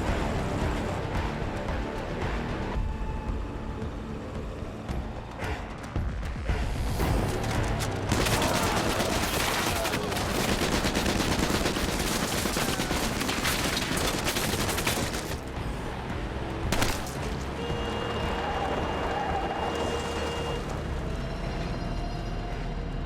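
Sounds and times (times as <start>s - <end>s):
automatic gunfire: 8.1s - 15.4s.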